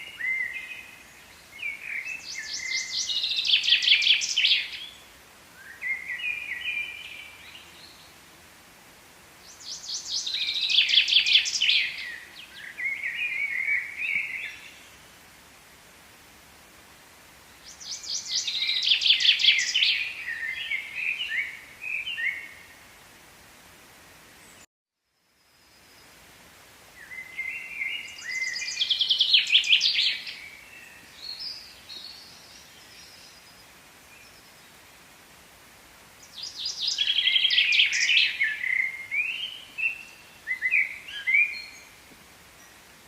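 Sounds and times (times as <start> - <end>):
songbird singing trills: 0.0 - 5.0, 9.5 - 15.0, 17.6 - 22.6, 27.0 - 34.7, 36.2 - 42.0
faint outdoor background: 0.0 - 43.0.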